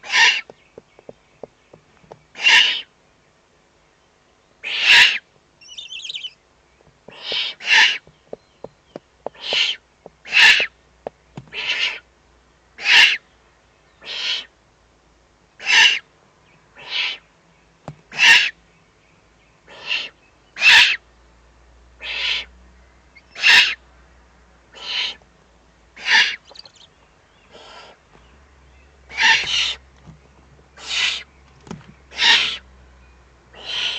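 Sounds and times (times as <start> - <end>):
owl nestlings rasping begging calls: 0.0 - 0.5, 2.3 - 2.9, 4.6 - 6.4, 7.1 - 10.8, 11.5 - 12.1, 12.8 - 13.2, 14.0 - 14.5, 15.6 - 16.0, 16.8 - 17.2, 18.1 - 18.6, 19.7 - 21.0, 22.0 - 22.5, 23.2 - 23.8, 24.7 - 25.2, 26.0 - 28.0, 29.1 - 29.8, 30.8 - 31.3, 32.1 - 32.7, 33.5 - 33.9.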